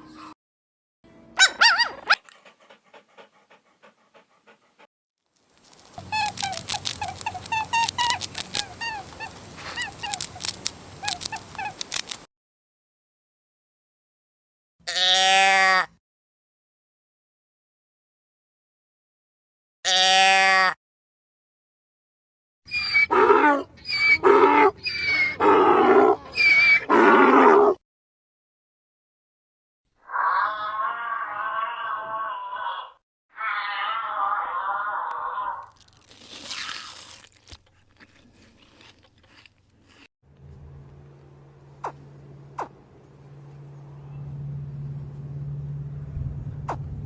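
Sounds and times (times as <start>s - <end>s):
squeaky animal calls: 1.4s - 2.2s, 6.0s - 11.9s, 22.7s - 27.7s.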